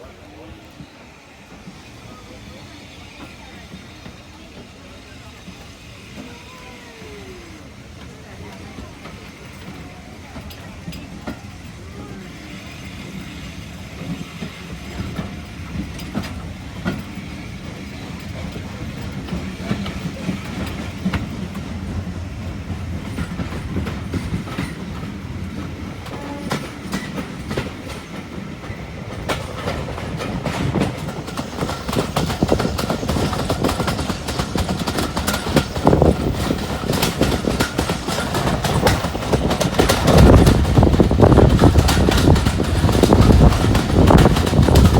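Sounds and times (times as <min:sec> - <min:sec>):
train wheels clicking over rail joints: 0:00.0 - 0:44.9.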